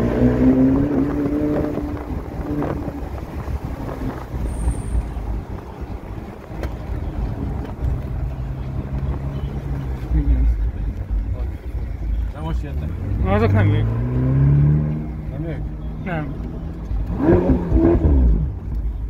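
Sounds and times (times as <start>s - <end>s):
car engine revving: 0.0s - 19.0s
wind buffeting microphone: 0.6s - 8.5s.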